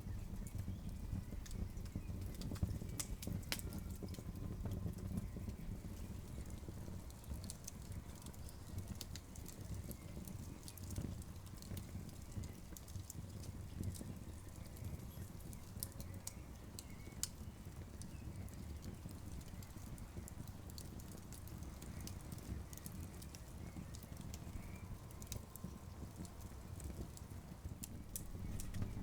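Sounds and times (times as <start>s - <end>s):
campfire crackling: 0.0s - 29.0s.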